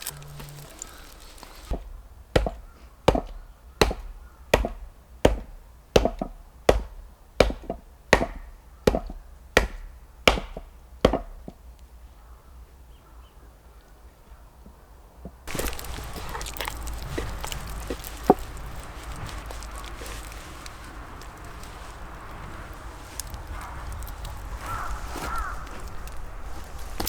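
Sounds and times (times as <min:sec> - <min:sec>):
chopping strikes: 0:00.0 - 0:11.4.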